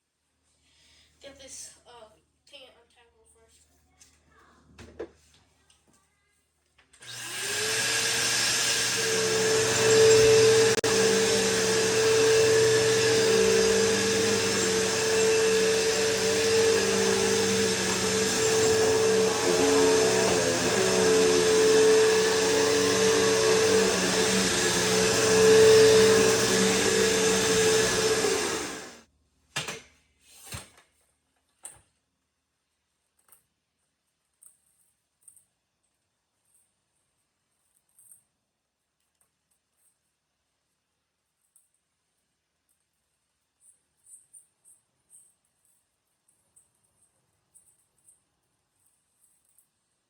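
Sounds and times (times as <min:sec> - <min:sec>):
upright vacuum cleaner running: 0:07.0 - 0:29.0.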